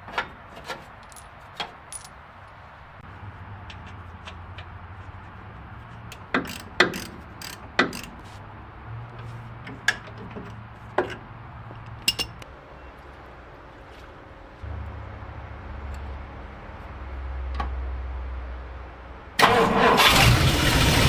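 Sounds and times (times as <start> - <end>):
low steady hum: 12.1 - 19.4.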